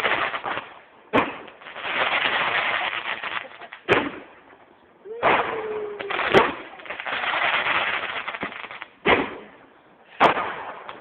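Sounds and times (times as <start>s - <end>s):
firework bangs: 0.0s - 11.0s
fireworks crackling: 0.0s - 11.0s.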